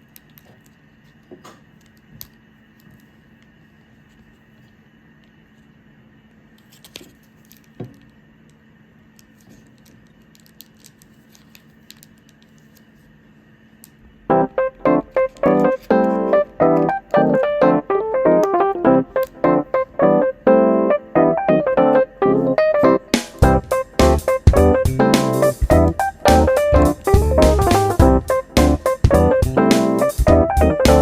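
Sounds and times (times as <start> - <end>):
faint room hum: 0.0 - 31.0
piano-like keyboard playing: 14.3 - 31.0.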